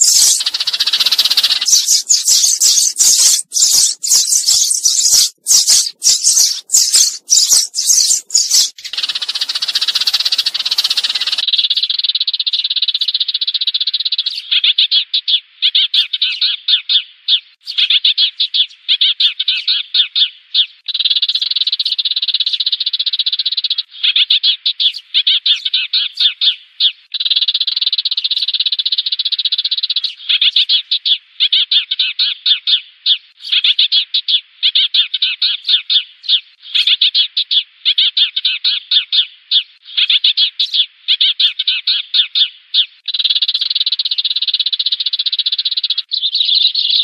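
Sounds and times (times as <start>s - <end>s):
sparrow scratchy clicking: 0.0s - 11.4s
sparrow trilled chirping: 0.0s - 17.0s, 17.7s - 47.0s.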